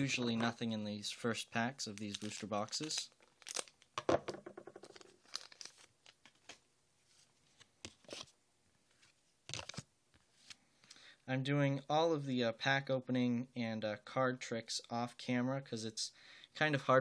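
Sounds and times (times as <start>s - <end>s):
foil wrapper tearing and crinkling: 1.9s - 3.9s, 4.8s - 6.2s.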